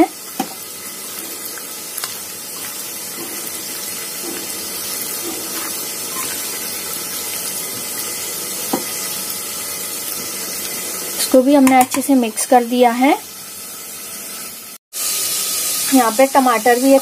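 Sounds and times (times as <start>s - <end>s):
tomatoes sizzling in oil: 0.0s - 17.0s.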